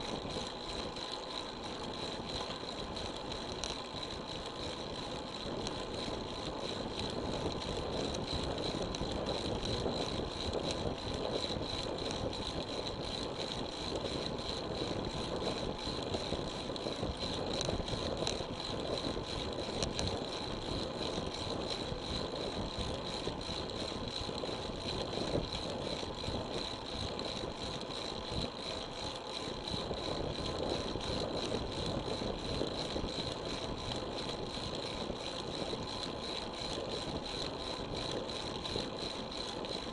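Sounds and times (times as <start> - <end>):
bicycle rattling: 0.0 - 39.9
tyre road and wind noise: 0.1 - 39.9.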